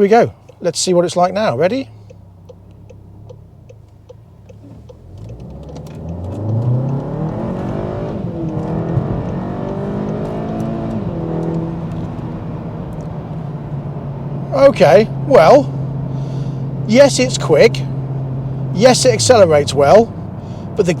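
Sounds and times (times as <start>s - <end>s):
light regular ticks: 2.0s - 7.4s
car engine revving: 2.0s - 21.0s.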